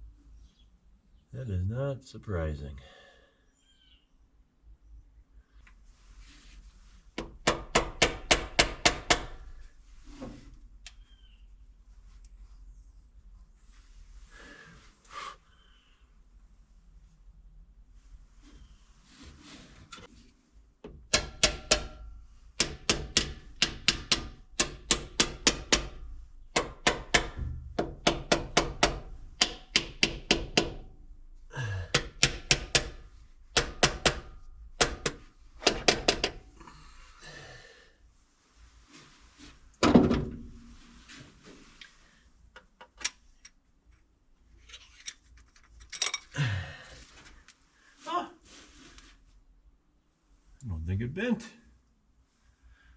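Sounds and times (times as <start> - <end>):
hammer tapping metal: 21.1 - 22.0, 22.6 - 26.0, 26.6 - 30.8.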